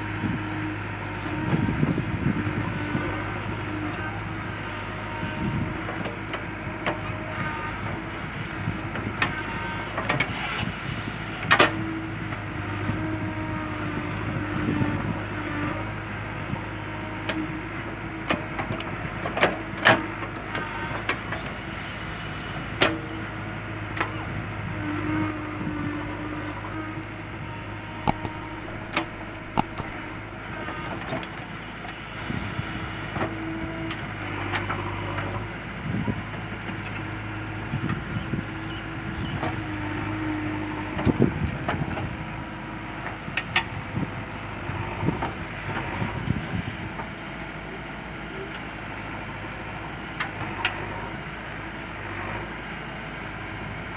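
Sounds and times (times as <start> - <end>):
diesel engine running: 24.6 - 46.0.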